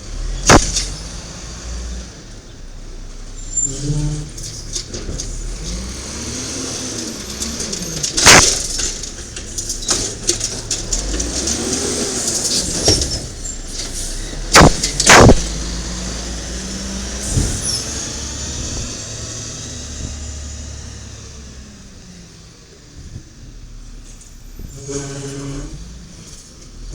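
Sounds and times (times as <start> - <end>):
diesel truck engine running: 0.0 - 24.6
cart banging against hopper: 0.4 - 1.2, 3.8 - 19.1
hydraulic whine: 3.2 - 23.1.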